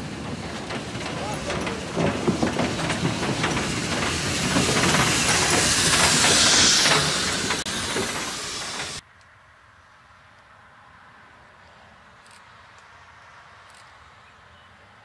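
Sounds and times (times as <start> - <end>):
steam locomotive hissing: 0.0 - 9.0.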